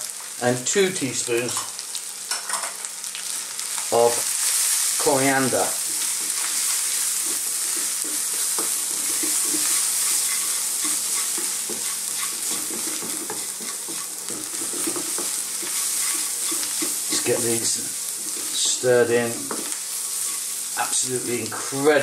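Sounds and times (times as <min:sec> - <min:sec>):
onions sizzling in hot oil: 0:00.0 - 0:22.0
wooden spoon scraping pan: 0:05.6 - 0:20.8.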